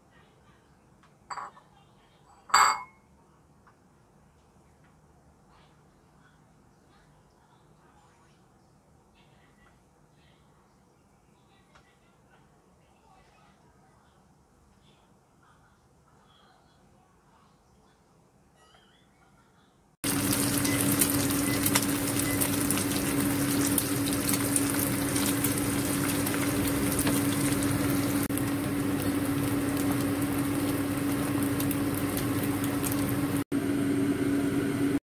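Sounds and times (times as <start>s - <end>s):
omelette sizzling in hot oil: 20.0s - 33.4s.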